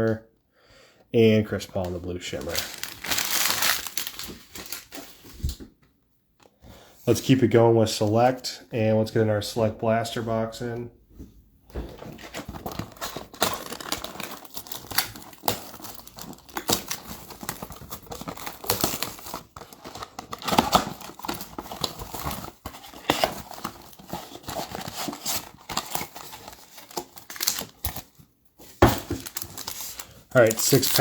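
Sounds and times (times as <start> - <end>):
foil packs crinkling: 2.3 - 5.3, 12.2 - 31.0
cardboard tearing and rustling: 2.4 - 5.3, 12.0 - 31.0.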